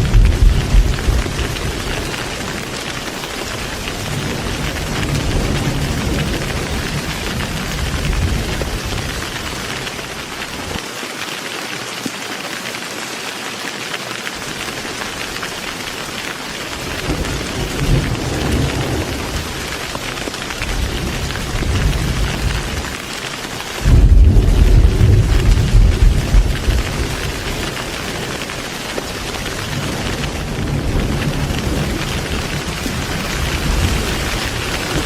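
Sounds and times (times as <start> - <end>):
rolling thunder: 0.0 - 2.8, 3.5 - 10.0, 16.8 - 22.9, 23.8 - 28.2, 29.2 - 35.0
heavy rain falling: 0.0 - 35.0.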